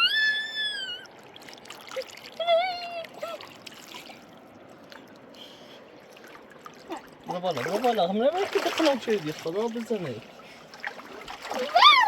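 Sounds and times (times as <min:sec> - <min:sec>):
high wailing cry: 0:00.0 - 0:01.1, 0:11.6 - 0:12.0
river water running: 0:00.0 - 0:12.0.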